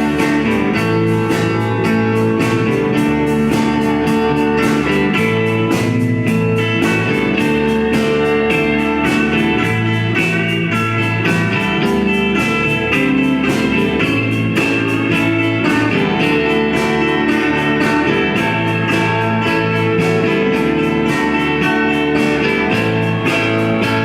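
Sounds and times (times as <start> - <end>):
band playing blues-rock: 0.0 - 24.0.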